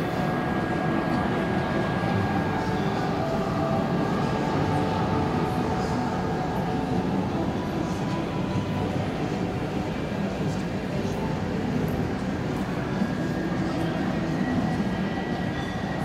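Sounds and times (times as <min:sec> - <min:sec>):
faint high whine: 0:00.0 - 0:16.0.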